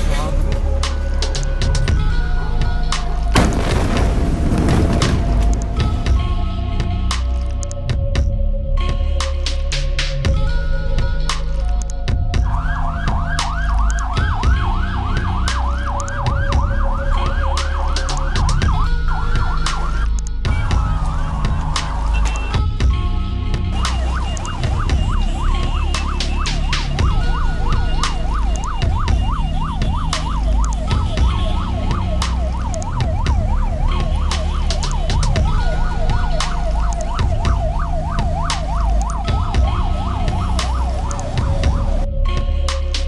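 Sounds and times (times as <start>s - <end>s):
low rumble: 3.4s - 7.2s
emergency vehicle siren: 11.4s - 43.0s.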